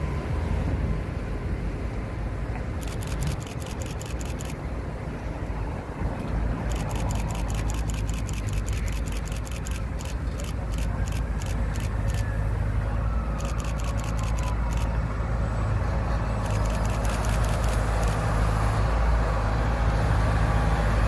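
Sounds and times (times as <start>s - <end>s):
truck engine rumbling: 0.0s - 21.0s
rapid ticking clicks: 2.8s - 4.6s, 6.6s - 12.3s, 13.4s - 15.0s, 16.4s - 18.4s.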